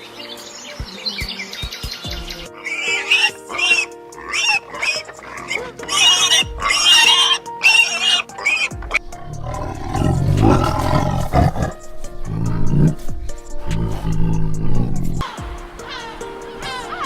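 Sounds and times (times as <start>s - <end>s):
background music: 0.0s - 17.0s
animal high-pitched cries: 2.5s - 13.0s, 15.8s - 17.0s
animal rough drawn-out call: 2.6s - 13.0s, 13.7s - 15.2s.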